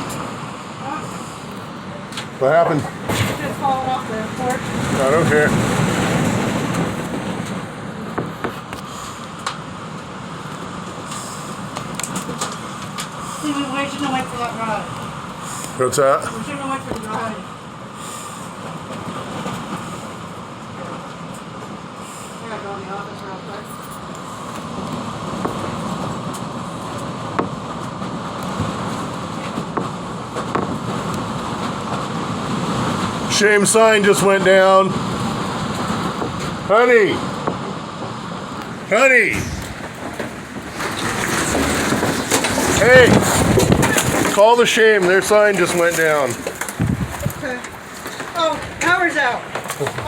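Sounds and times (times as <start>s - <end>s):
storm wind gusting: 0.0s - 50.0s
sharp knocks and rattles: 37.3s - 50.0s.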